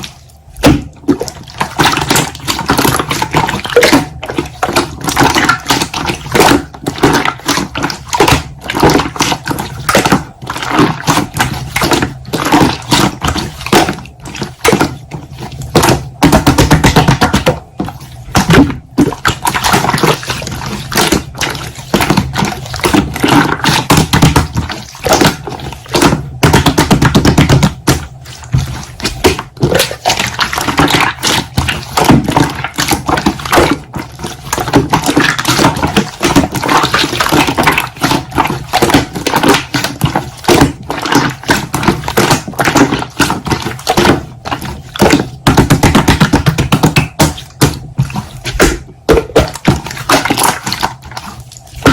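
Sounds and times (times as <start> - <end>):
slime squeezed with wet pops: 0.0 - 51.9.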